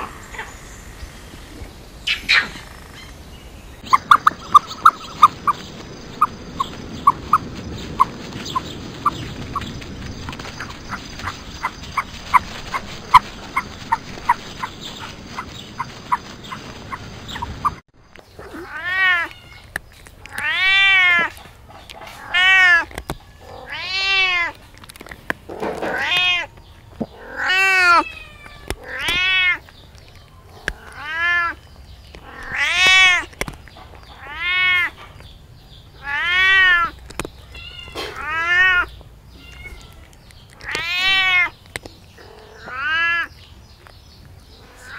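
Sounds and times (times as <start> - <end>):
cat meowing: 18.4 - 19.7, 20.3 - 21.3, 22.2 - 24.6, 25.8 - 26.6, 27.2 - 29.7, 30.7 - 31.6, 32.2 - 33.4, 34.2 - 35.0, 36.0 - 41.6, 42.6 - 43.4.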